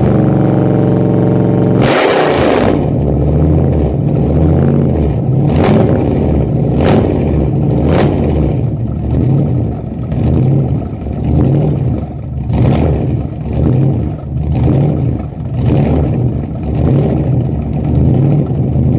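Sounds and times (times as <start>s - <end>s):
engine exhaust pops: 1.8s - 18.9s
car engine fast idle: 7.4s - 18.9s.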